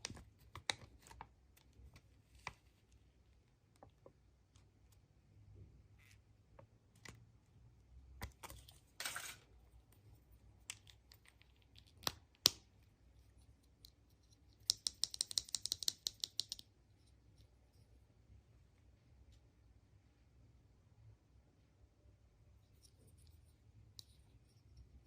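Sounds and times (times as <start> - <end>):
plastic toy pieces clicking: 14.7 - 16.6.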